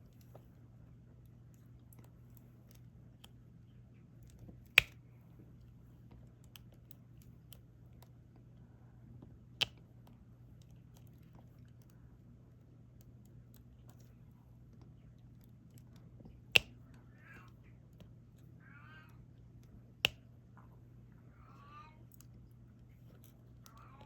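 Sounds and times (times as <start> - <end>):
low steady hum: 0.0 - 24.0
light plastic clicks: 4.2 - 8.6, 12.9 - 18.5.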